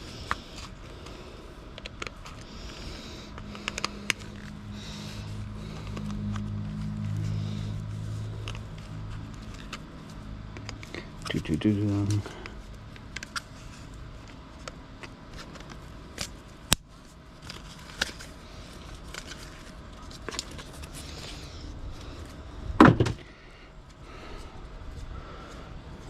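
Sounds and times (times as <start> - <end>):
loud thump: 22.8 - 23.2.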